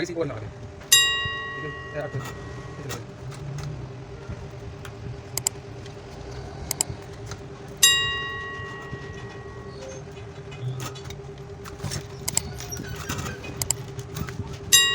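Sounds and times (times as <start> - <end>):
faint steady hum: 0.0 - 14.9
tools clicking on wires: 0.8 - 14.9
metal striking metal with ring: 0.9 - 4.4, 7.8 - 10.8.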